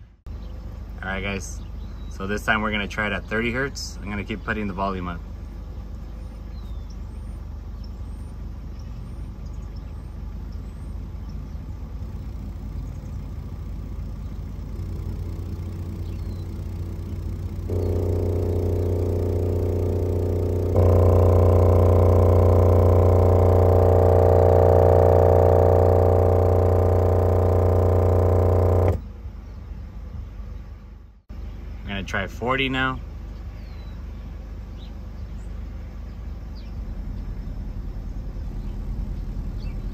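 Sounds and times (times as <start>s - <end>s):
subwoofer buzzing low test tone: 11.6s - 29.7s, 36.6s - 39.9s.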